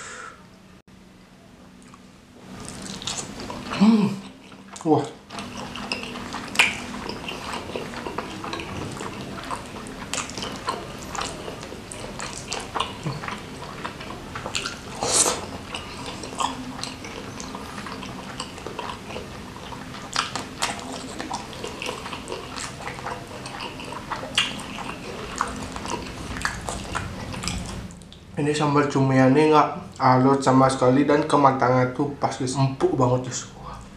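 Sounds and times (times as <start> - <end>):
wet chewing with mouth smacks: 1.8 - 28.3.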